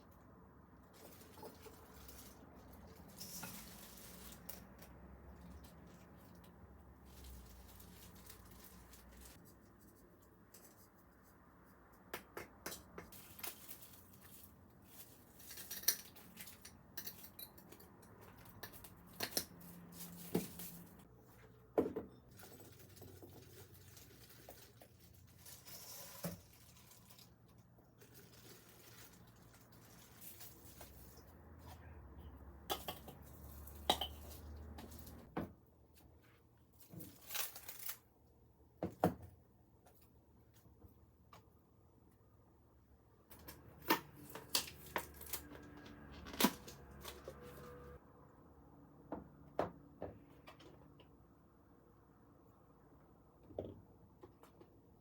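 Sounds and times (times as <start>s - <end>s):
kitchen utensils and dishes clinking: 32.7s - 35.2s.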